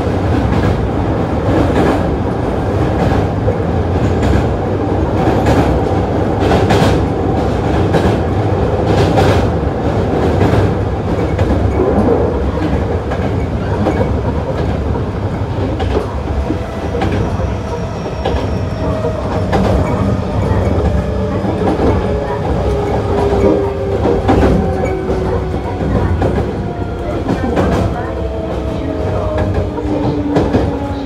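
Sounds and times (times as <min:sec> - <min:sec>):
low rumble of train wheels: 0:00.0 - 0:31.0
clacks over rail joints: 0:10.2 - 0:31.0.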